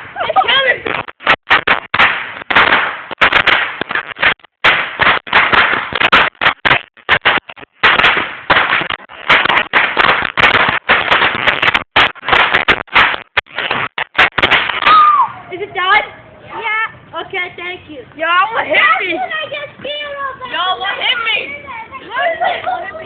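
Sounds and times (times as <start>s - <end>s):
firecrackers banging: 0.0s - 16.1s.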